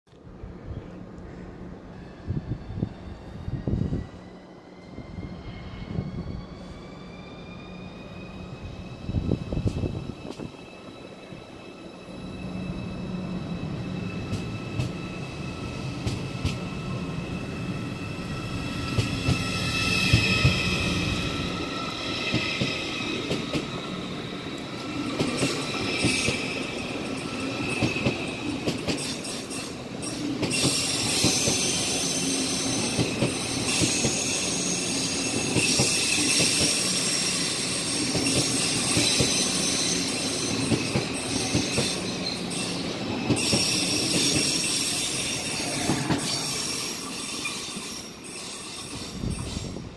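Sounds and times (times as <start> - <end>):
high wheel squeal and hiss: 17.9 - 23.2, 29.2 - 49.8.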